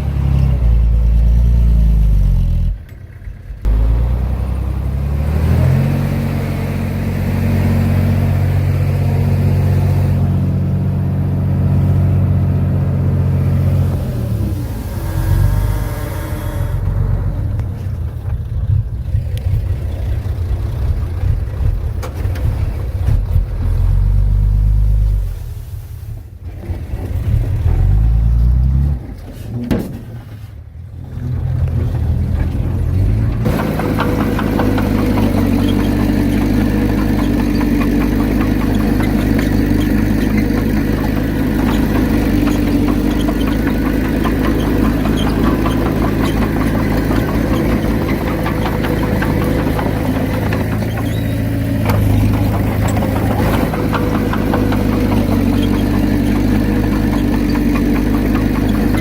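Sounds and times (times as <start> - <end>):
heavy diesel machinery engine rumble: 0.0 - 59.0
rattling clatter: 29.2 - 59.0.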